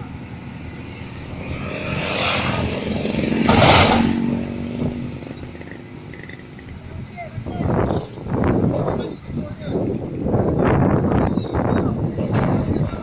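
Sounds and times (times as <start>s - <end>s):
vehicle engine revving: 0.9s - 6.7s.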